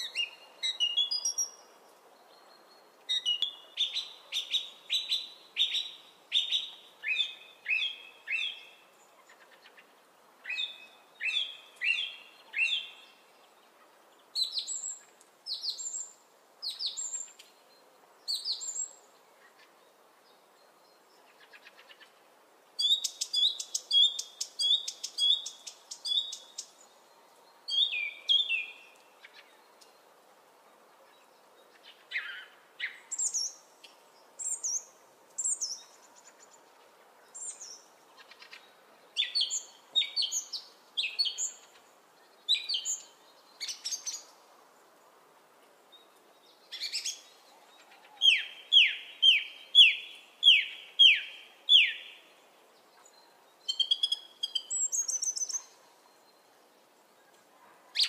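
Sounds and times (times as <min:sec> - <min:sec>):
bird singing whistled notes: 0:00.0 - 0:01.7, 0:02.3 - 0:08.9, 0:10.4 - 0:13.2, 0:14.4 - 0:17.4, 0:18.3 - 0:19.0, 0:22.8 - 0:26.9, 0:27.7 - 0:30.0, 0:39.2 - 0:41.7, 0:42.3 - 0:44.4, 0:46.0 - 0:47.5, 0:48.2 - 0:52.3, 0:53.1 - 0:56.5
faint steady hiss: 0:00.0 - 0:58.0.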